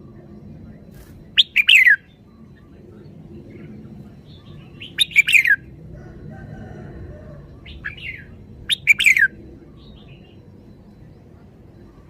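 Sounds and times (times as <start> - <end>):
low background noise: 0.0 - 12.0
bird whistled song phrases: 1.0 - 2.7, 4.2 - 5.6, 7.6 - 10.5.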